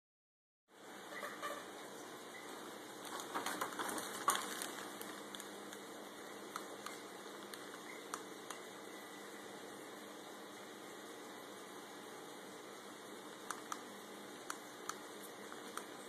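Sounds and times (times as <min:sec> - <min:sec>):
faint steady hiss: 0:00.7 - 0:16.0
small clicks and taps: 0:13.5 - 0:16.0.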